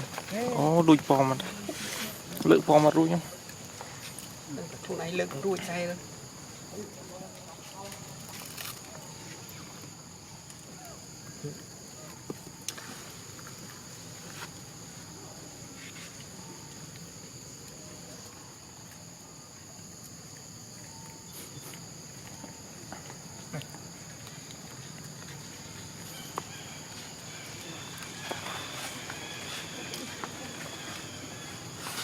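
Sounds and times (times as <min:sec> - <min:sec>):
insects chirring: 0:00.0 - 0:32.0
faint clicks and rustles: 0:07.3 - 0:10.7.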